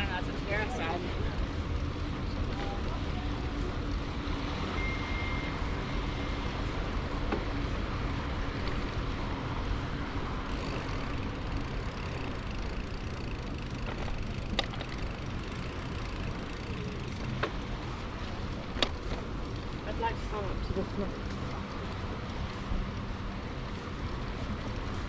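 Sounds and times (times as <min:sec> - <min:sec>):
bicycle rolling: 0:00.0 - 0:25.0
wind: 0:00.0 - 0:25.0
brief high tone: 0:04.7 - 0:05.5.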